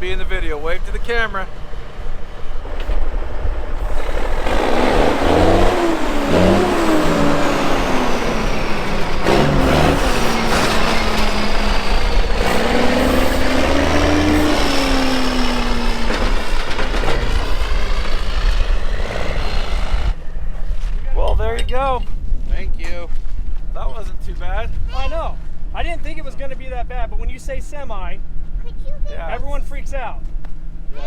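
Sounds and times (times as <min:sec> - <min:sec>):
truck engine revving: 0:00.0 - 0:20.3
steady wind noise: 0:00.0 - 0:28.6.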